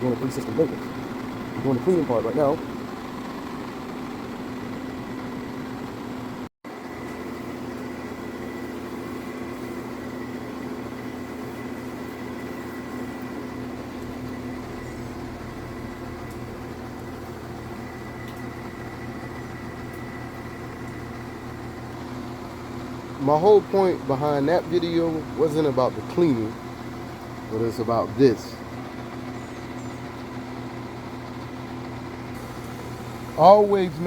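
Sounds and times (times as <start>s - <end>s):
hvac equipment humming: 0.0s - 34.0s.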